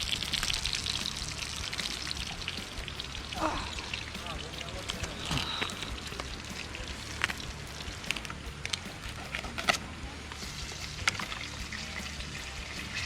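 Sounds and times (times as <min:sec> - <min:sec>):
fish sizzling in a pan: 0:00.0 - 0:04.4.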